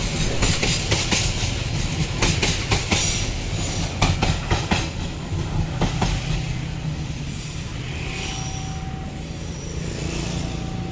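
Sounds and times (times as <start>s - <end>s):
train wheels clacking over rail joints: 0.0s - 7.4s
train rumble: 0.0s - 10.9s
faint thin squeal: 7.8s - 10.9s.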